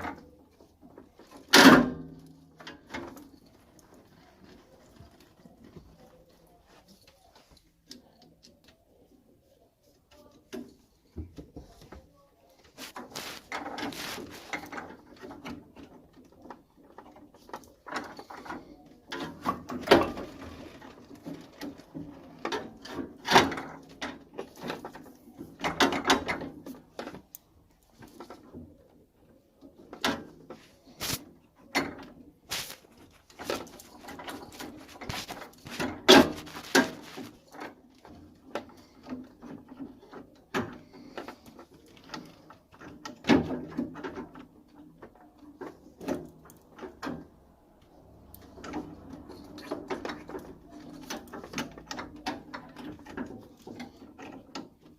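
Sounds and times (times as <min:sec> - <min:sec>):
hand tools clicking and knocking: 0:29.8 - 0:54.9.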